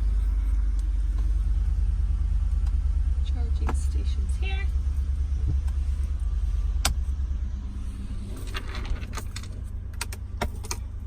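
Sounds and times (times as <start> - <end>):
low steady rumble: 0.0 - 11.0
sharp clicks and rattles: 8.2 - 11.0.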